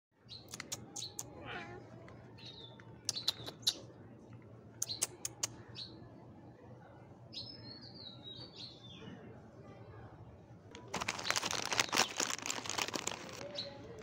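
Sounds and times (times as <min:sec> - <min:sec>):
bird chirping: 0:02.4 - 0:03.9, 0:04.8 - 0:06.0.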